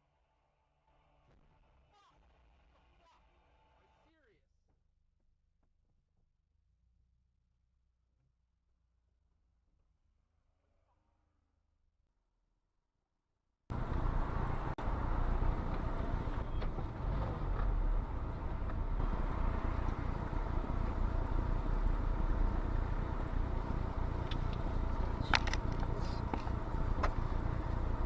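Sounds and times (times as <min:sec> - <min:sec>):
car road and engine rumble: 0:13.7 - 0:28.0.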